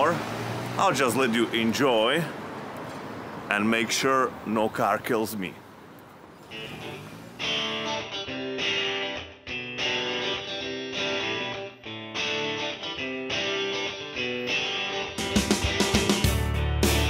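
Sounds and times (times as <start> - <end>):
guitar playing picked chords: 6.5 - 17.0.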